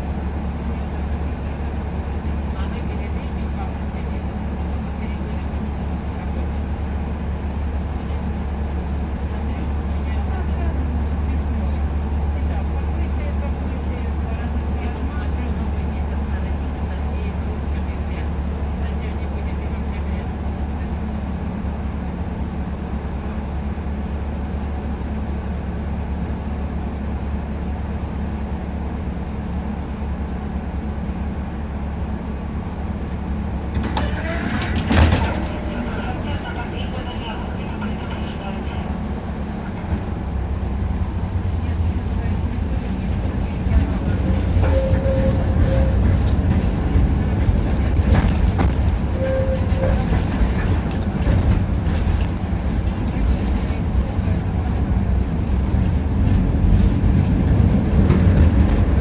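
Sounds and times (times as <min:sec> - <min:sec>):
tram wheels rumbling on track: 0:00.0 - 0:59.0
wheels clacking over rail joints: 0:33.0 - 0:59.0.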